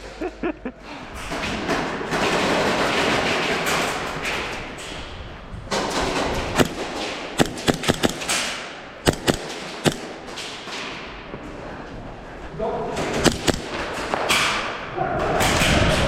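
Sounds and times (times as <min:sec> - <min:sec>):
airsoft guns firing: 0:01.7 - 0:04.5, 0:05.7 - 0:11.2, 0:13.0 - 0:14.8.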